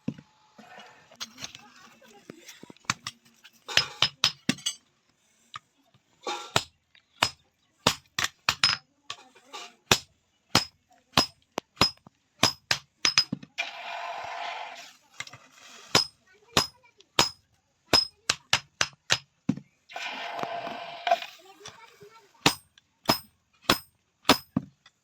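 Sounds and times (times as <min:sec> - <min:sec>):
hammer striking metal: 0:06.6 - 0:08.8, 0:10.6 - 0:13.3, 0:16.0 - 0:17.4, 0:18.0 - 0:19.2, 0:22.5 - 0:24.5.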